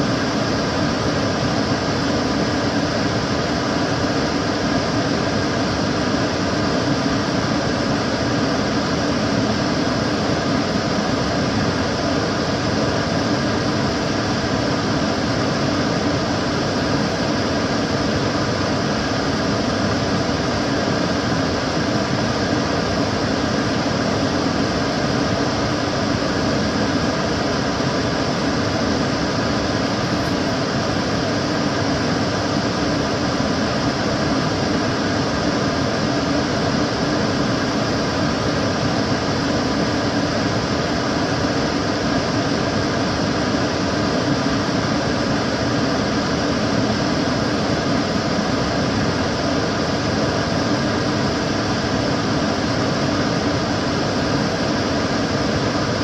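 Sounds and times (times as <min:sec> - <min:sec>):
extractor fan whooshing: 0:00.0 - 0:56.0
faint fan hum: 0:00.0 - 0:56.0.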